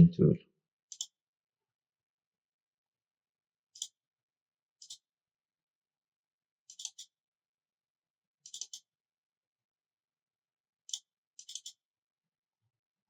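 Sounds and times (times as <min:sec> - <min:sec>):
computer mouse clicking: 0:00.9 - 0:01.2, 0:03.8 - 0:04.0, 0:04.8 - 0:05.1, 0:06.7 - 0:07.1, 0:08.4 - 0:08.9, 0:10.9 - 0:11.8.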